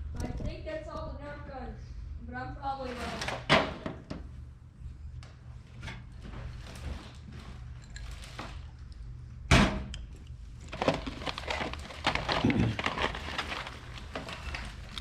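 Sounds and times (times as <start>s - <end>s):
cardboard rustling: 10.6s - 15.0s.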